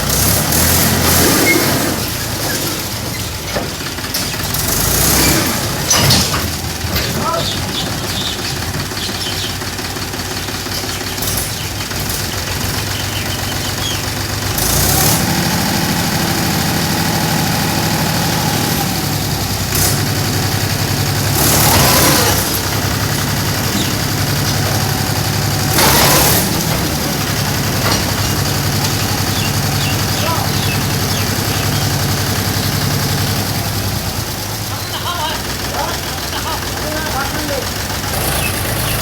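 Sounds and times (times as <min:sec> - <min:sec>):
tractor engine running: 0:00.0 - 0:39.0.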